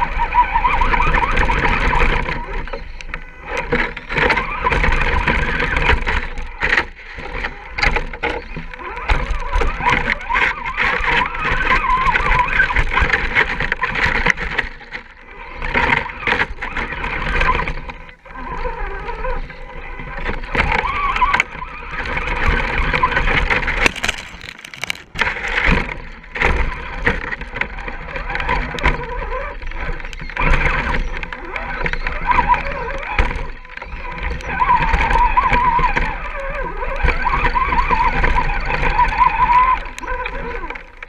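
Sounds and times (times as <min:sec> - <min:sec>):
clicks and knocks: 0:23.8 - 0:26.0.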